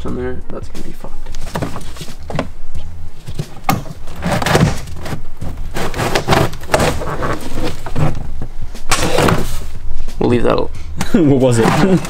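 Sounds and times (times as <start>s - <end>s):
hands working on sheet metal: 3.3s - 9.7s, 11.4s - 12.0s.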